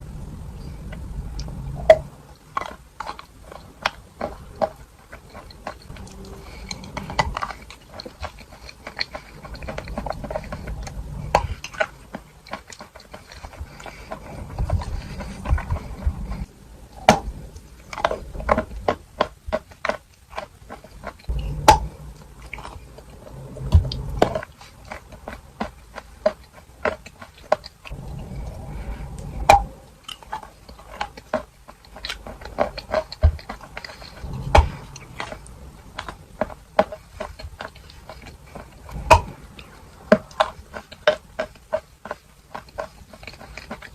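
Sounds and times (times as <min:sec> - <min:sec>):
wet chewing: 0:00.0 - 0:43.9
chalk crunching: 0:02.6 - 0:16.5.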